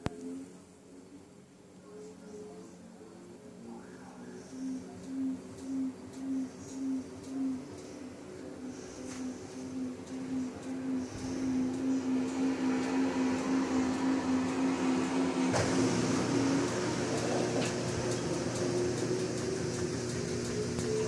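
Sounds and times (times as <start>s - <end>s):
washing machine spinning: 6.2s - 21.0s.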